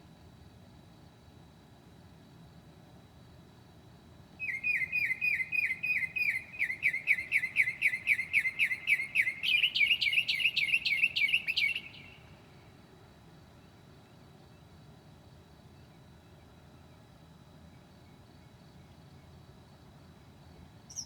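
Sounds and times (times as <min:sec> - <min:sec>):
bird singing whistled notes: 0:04.4 - 0:12.3.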